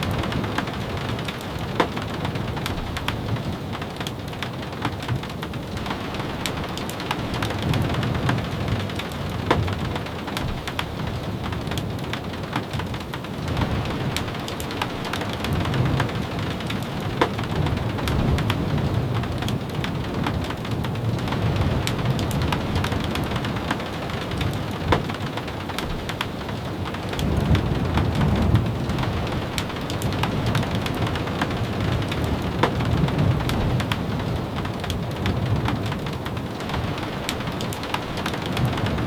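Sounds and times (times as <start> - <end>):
steady rain: 0.0 - 39.0
sharp pops and taps: 32.6 - 32.8.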